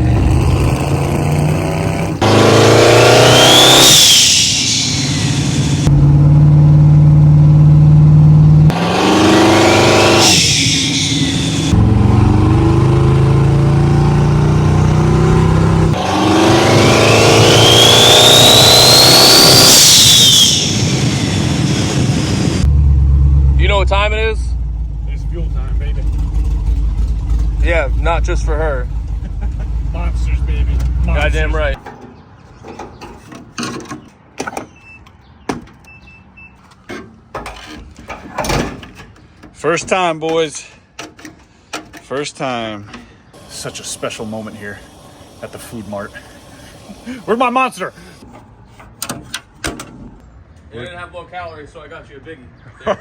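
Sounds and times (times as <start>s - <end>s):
turbo whistle rising in pitch: 2.6s - 5.9s, 9.3s - 11.8s, 16.2s - 22.6s
car engine running: 4.6s - 19.6s, 20.2s - 31.8s, 43.4s - 48.2s.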